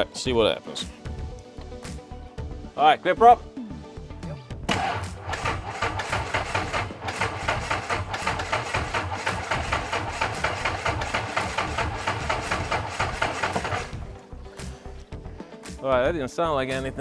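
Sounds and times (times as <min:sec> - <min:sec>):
aircraft engine cranking: 0:04.7 - 0:14.2.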